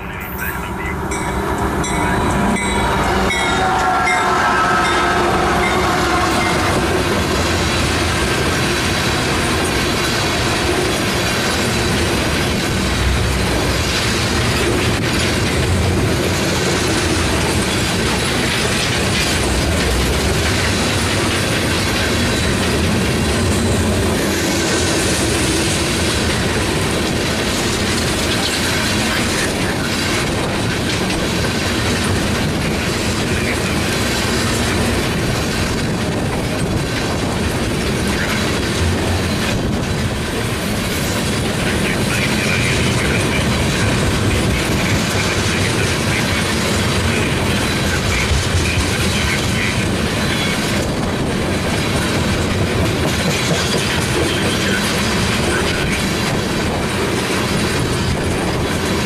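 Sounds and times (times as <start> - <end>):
train wheels rumbling and clacking: 0.0 - 59.0
locomotive horn: 2.3 - 7.8.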